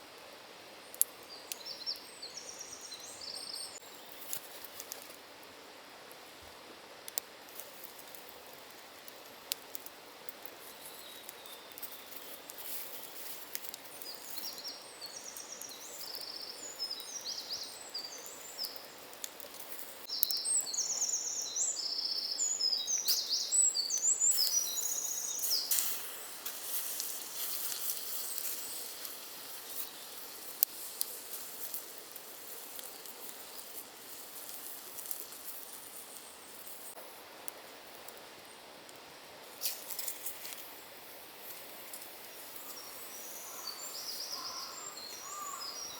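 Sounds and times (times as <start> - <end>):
forest ambience: 0.0 - 45.9
songbird singing short phrases: 20.1 - 25.7, 42.6 - 45.9.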